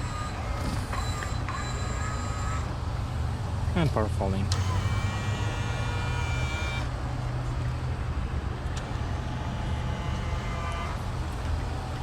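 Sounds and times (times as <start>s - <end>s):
mirror motor whining: 0.0s - 2.8s, 4.5s - 7.0s, 8.8s - 12.0s.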